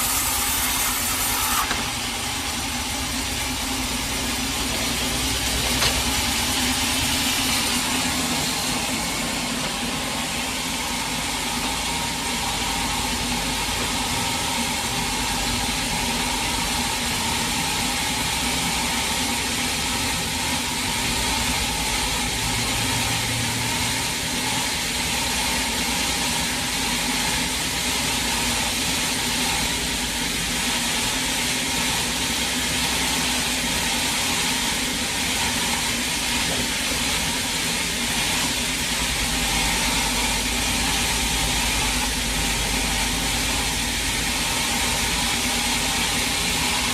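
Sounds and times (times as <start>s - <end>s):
sawmill machinery droning: 0.0s - 46.9s.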